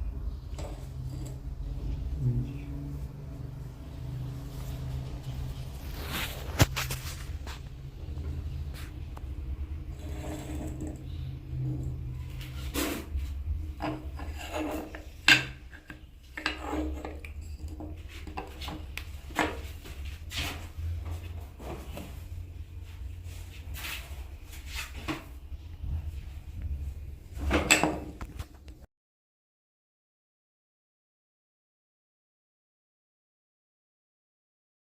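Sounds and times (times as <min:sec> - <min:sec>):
wooden knocks and scrapes: 0:09.8 - 0:22.5.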